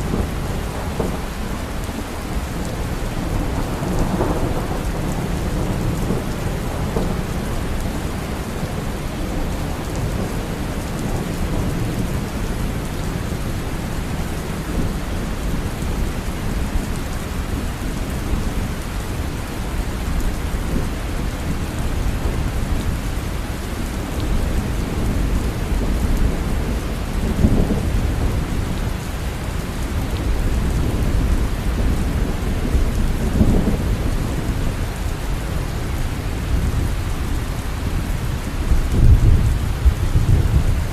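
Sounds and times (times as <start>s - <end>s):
low rumble of thunder: 0.0s - 40.9s
steady rain: 0.0s - 40.9s.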